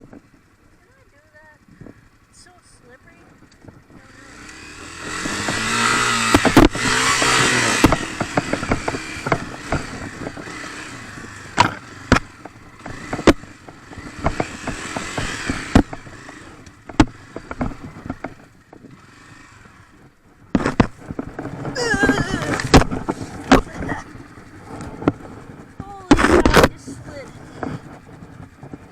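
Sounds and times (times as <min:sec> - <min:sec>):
dirt bike engine revving: 0:02.0 - 0:28.9
sharp knocks and clacks: 0:05.2 - 0:10.5, 0:11.5 - 0:18.9.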